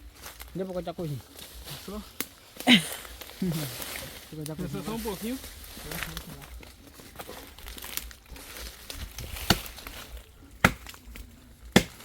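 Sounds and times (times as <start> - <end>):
dry leaves rustling: 0.0 - 12.0
axe chopping into log: 9.3 - 9.8, 10.6 - 11.0, 11.7 - 12.0.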